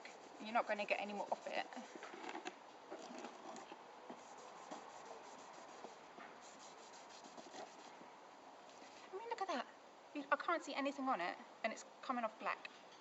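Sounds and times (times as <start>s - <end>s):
scratchy rubbing of plastic: 0.0s - 8.0s.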